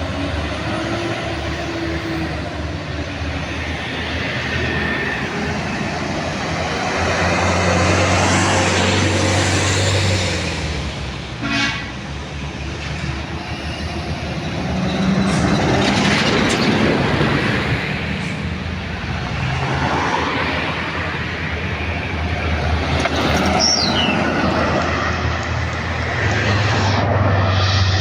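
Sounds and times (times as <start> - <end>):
truck horn toot: 11.4 - 12.0.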